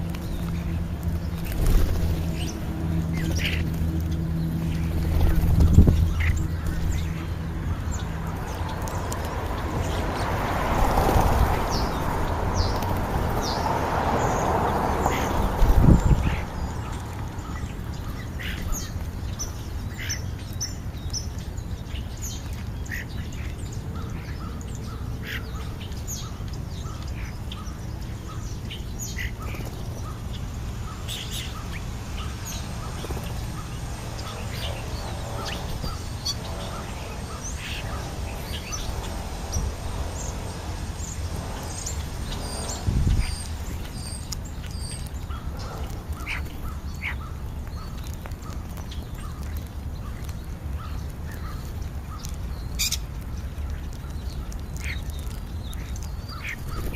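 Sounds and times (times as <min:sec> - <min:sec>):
steady low rumble: 0:00.0 - 0:20.0
harsh bird chatter: 0:00.0 - 0:56.9
starlings whistling and chirping: 0:15.1 - 0:49.5, 0:50.3 - 0:53.1.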